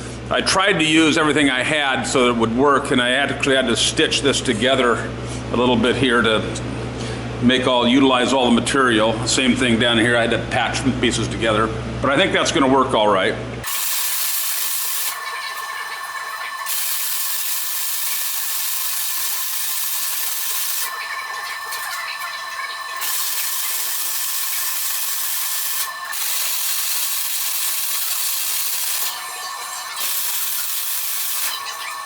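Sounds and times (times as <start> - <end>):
welding arc hissing: 13.6 - 32.0.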